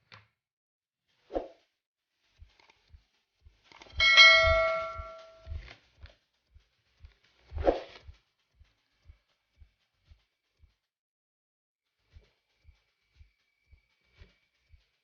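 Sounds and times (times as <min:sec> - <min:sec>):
soft low thumps: 0:02.9 - 0:05.7
metal object ringing: 0:03.9 - 0:05.5.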